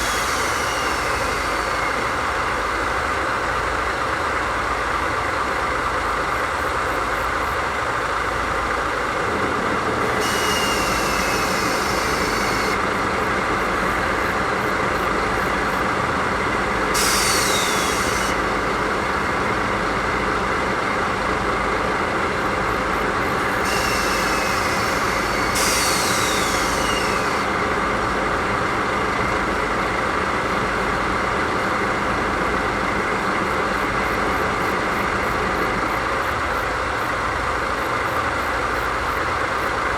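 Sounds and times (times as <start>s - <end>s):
compressed air hissing: 0.0s - 2.6s, 9.8s - 15.8s, 16.7s - 19.0s, 22.5s - 27.6s
diesel locomotive idling: 0.0s - 39.9s.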